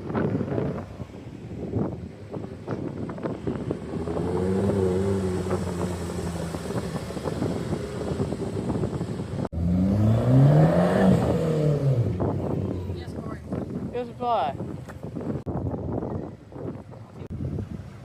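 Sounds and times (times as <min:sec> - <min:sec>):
car engine revving: 0:02.8 - 0:13.9.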